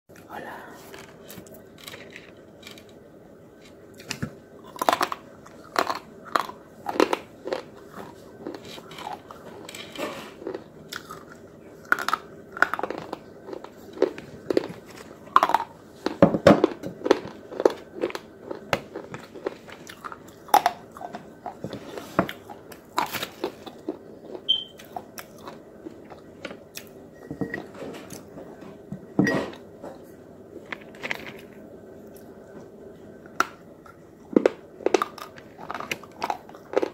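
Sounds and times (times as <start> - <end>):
biting and chewing crunchy sticks: 3.6 - 26.9, 33.4 - 36.9.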